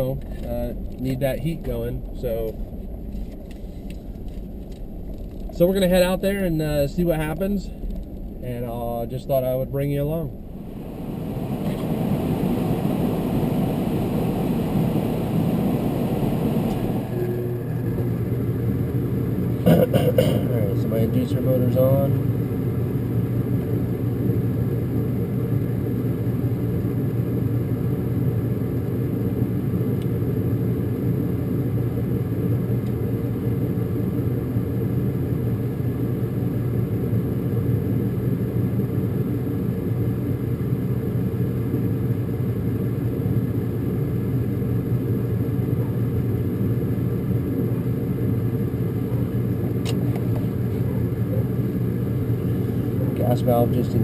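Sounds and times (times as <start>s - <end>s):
furnace motor humming: 10.3s - 29.2s, 45.0s - 54.0s.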